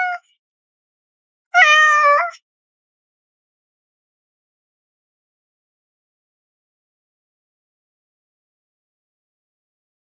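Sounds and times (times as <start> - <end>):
cat meowing: 0.0 - 0.2, 1.6 - 2.4.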